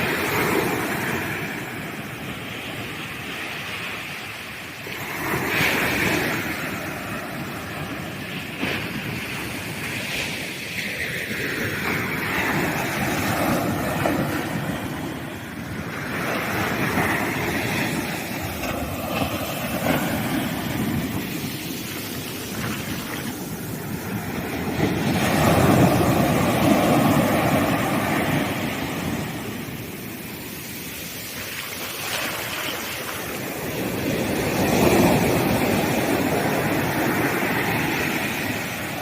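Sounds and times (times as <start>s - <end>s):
sea waves breaking on sand: 0.0s - 39.0s.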